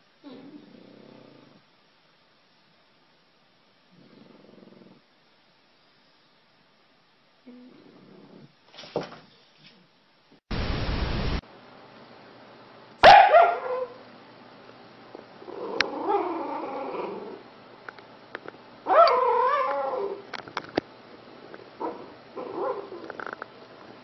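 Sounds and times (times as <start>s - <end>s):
puppy yelping: 13.0s - 14.0s, 18.9s - 20.2s
puppy yipping: 13.0s - 14.0s, 18.9s - 20.1s.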